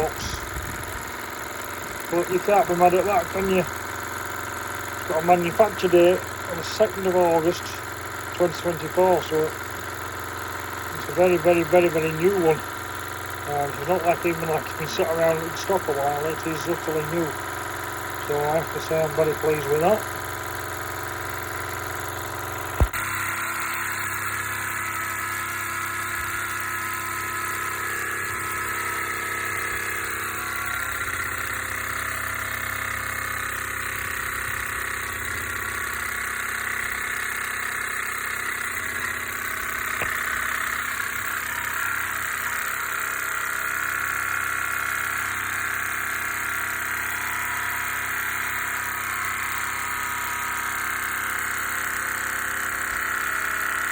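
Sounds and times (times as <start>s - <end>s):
toy steam engine running: 0.0s - 53.9s
sharp click: 22.8s - 23.0s.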